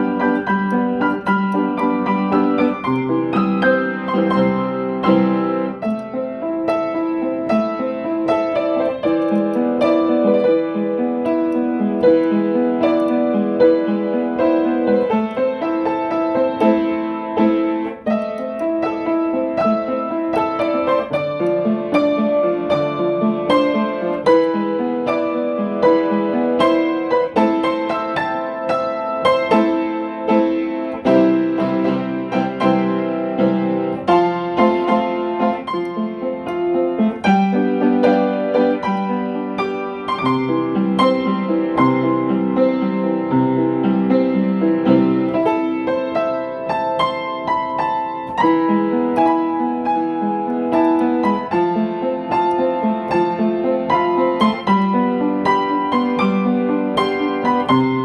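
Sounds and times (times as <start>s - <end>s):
piano music with sustained chords: 0.0s - 58.0s.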